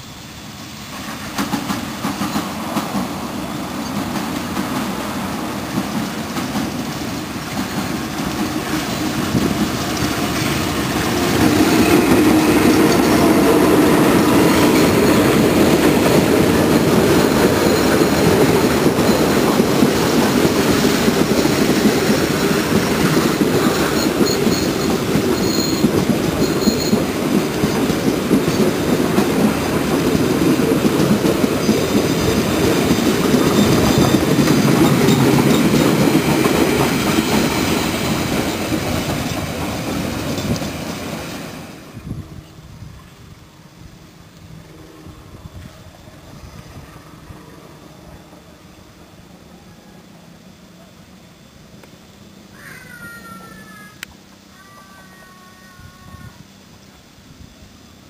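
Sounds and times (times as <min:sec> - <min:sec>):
passenger train passing: 0:00.0 - 0:58.0
train wheels clattering over rails: 0:00.9 - 0:41.8
high wheel squeals: 0:16.8 - 0:21.7, 0:23.1 - 0:27.2, 0:31.6 - 0:36.3.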